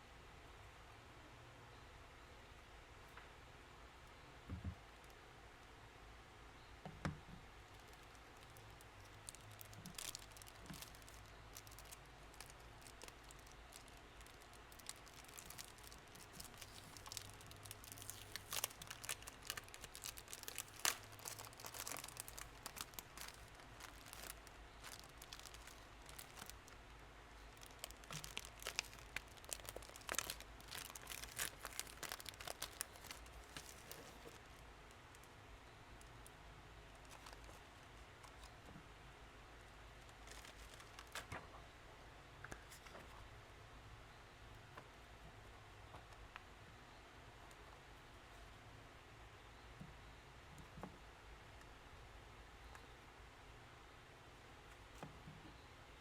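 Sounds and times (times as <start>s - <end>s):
faint low hum: 0.0s - 56.0s
paper crinkling and tearing: 7.8s - 26.8s, 27.4s - 34.6s, 40.1s - 41.4s.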